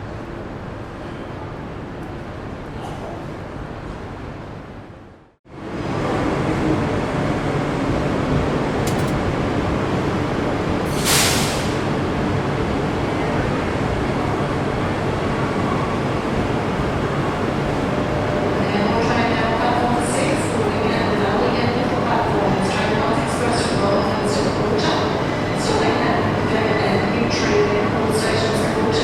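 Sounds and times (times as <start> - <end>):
train running on rails: 0.0 - 29.0
sharp hiss of air: 10.9 - 11.8.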